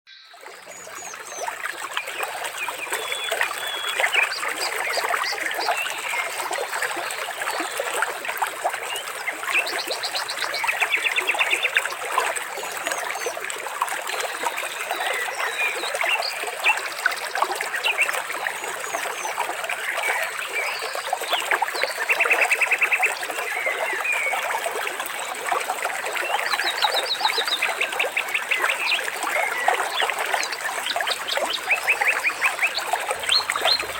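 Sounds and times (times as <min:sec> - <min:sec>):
water trickling and splashing: 0:00.3 - 0:33.9
birds chirping and trilling: 0:31.5 - 0:33.9.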